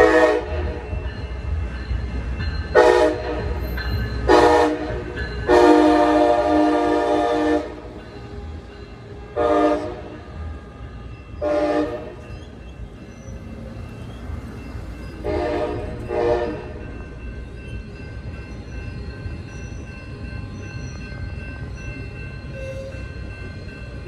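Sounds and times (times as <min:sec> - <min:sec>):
train horn blasts: 0:00.0 - 0:00.9, 0:02.8 - 0:03.7, 0:04.3 - 0:12.2, 0:15.2 - 0:16.9
low rumble of moving train: 0:00.0 - 0:24.0.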